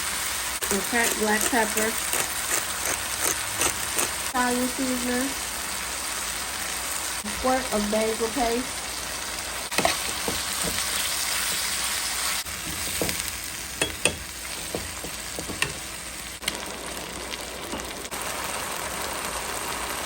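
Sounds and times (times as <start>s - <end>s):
ground beef sizzling in a pan: 0.0s - 20.0s
utensil scraping and tapping: 0.6s - 4.2s.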